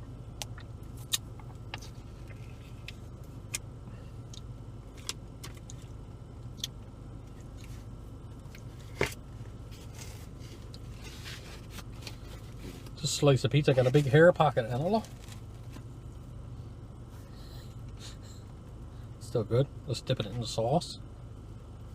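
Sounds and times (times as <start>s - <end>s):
steady low hum: 0.0s - 21.9s
person chewing and biting pizza: 0.4s - 13.0s
mouth clicks and smacks: 6.5s - 6.8s.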